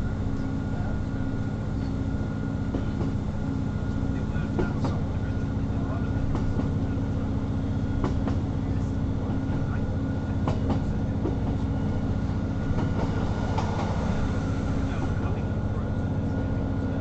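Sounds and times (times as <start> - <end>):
train drone: 0.0 - 17.0.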